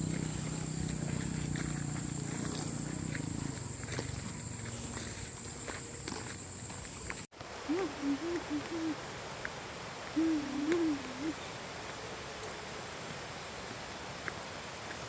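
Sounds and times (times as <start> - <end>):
owl hooting: 7.7 - 9.0, 10.2 - 11.5.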